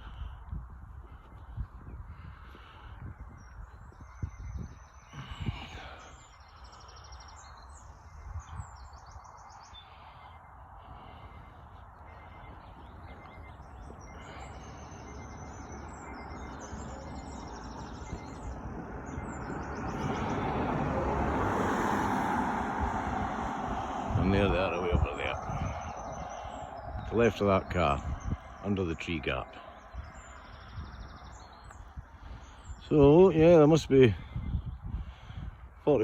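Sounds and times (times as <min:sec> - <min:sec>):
wind rumble on microphone: 0:00.0 - 0:36.0
songbird singing trilled phrases: 0:03.1 - 0:20.5, 0:24.1 - 0:35.0.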